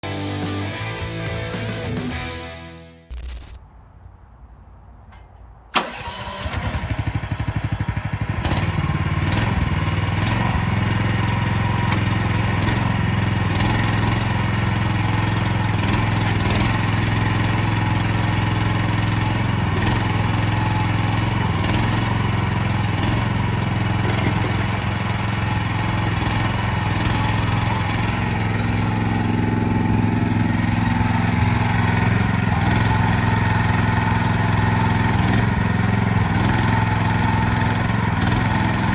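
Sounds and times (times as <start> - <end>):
excavator engine starting and idling: 0.0 - 3.9, 4.9 - 38.9.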